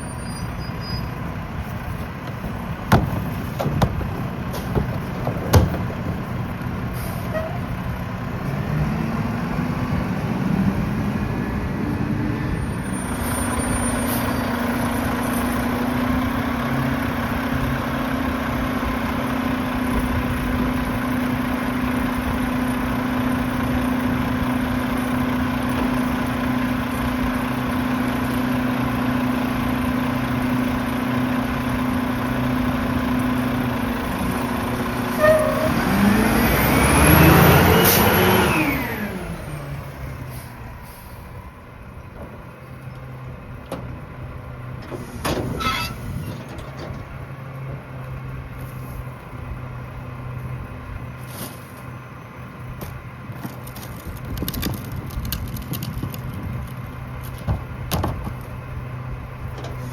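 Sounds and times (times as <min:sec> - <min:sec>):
diesel engine revving: 0:00.0 - 0:59.9
hydraulic packer running: 0:00.8 - 0:08.1.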